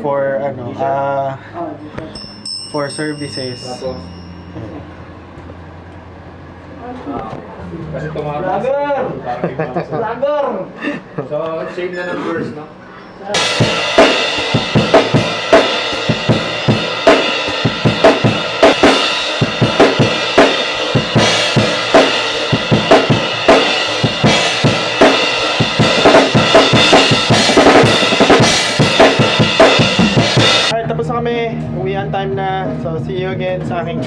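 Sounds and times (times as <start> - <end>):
drum kit beat: 2.0 - 5.8, 13.3 - 30.8
live band playing: 13.3 - 30.7.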